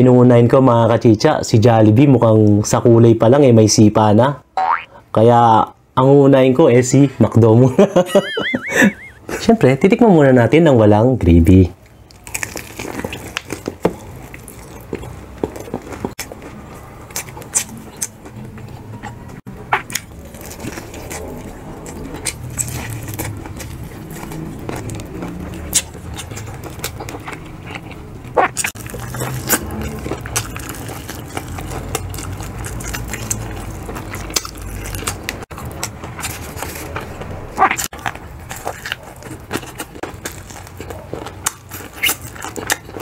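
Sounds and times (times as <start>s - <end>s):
crunching fried chicken: 11.2s - 43.0s
wet chewing: 11.8s - 43.0s.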